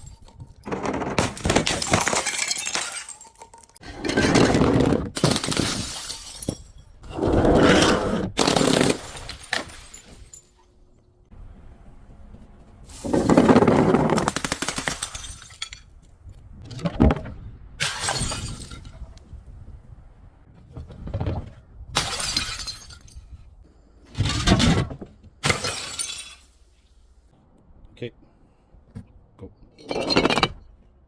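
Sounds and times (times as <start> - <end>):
glass bottles shattering: 0.0 - 7.0, 8.4 - 10.6, 15.0 - 15.9, 17.8 - 19.0, 22.0 - 23.3, 25.4 - 26.6.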